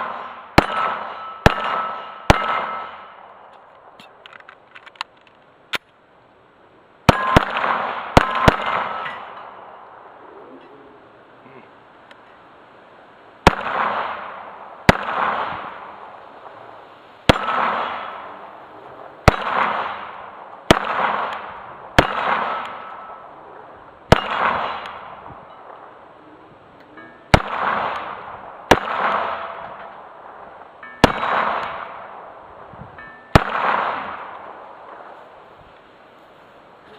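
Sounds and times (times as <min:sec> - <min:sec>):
pistol shots: 0:00.0 - 0:03.4, 0:07.1 - 0:09.8, 0:13.4 - 0:16.6, 0:17.3 - 0:18.6, 0:19.2 - 0:23.3, 0:24.1 - 0:25.9, 0:27.3 - 0:32.4, 0:33.3 - 0:35.2
steel plate ringing: 0:00.6 - 0:03.0, 0:30.8 - 0:32.0, 0:32.9 - 0:33.4.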